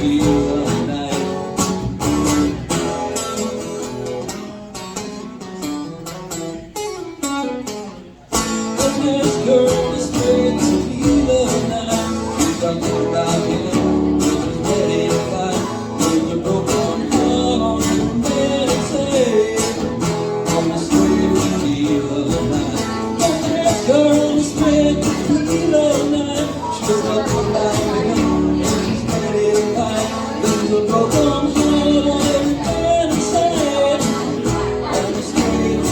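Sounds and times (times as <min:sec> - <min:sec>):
guitar playing a run: 0:00.0 - 0:35.9
live country band playing: 0:00.0 - 0:35.9.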